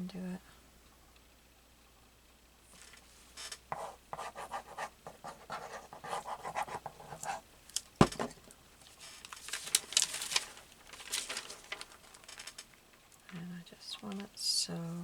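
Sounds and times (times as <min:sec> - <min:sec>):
paper rustling: 0:02.7 - 0:03.6, 0:04.2 - 0:13.4
paper rubbing strokes: 0:02.8 - 0:07.4.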